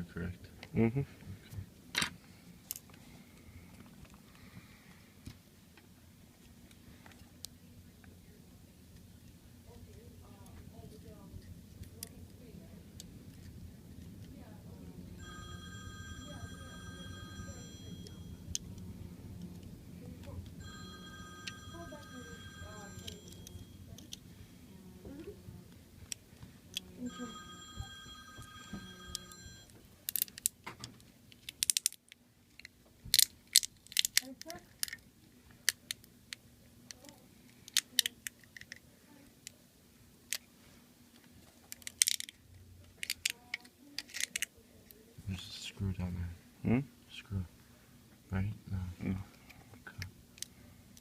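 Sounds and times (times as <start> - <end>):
faint steady hum: 0.0 - 51.0
electronic tone: 20.6 - 23.9, 27.0 - 29.7
small tools clicking on phone parts: 30.1 - 30.6, 31.3 - 35.0, 41.7 - 42.4, 43.0 - 44.5.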